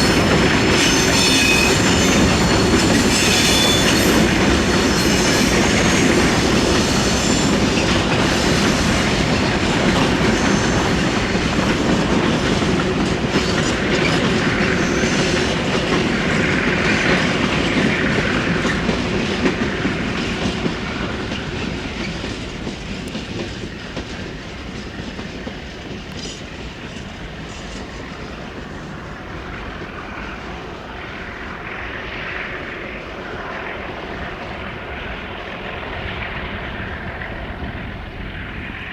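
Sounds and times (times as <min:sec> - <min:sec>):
train wheels clattering over joints: 0:00.0 - 0:31.0.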